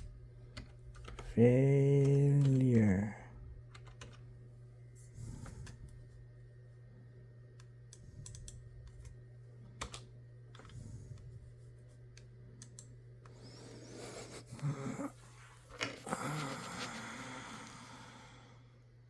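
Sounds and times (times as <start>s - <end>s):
steady low hum: 0.0s - 19.0s
keyboard keys clicking: 0.5s - 1.3s, 3.7s - 4.2s, 9.8s - 10.7s.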